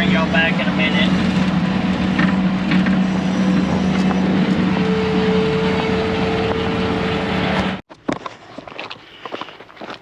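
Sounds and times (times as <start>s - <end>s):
diesel engine running hard: 0.0s - 7.8s
thin hydraulic whine: 2.1s - 7.4s.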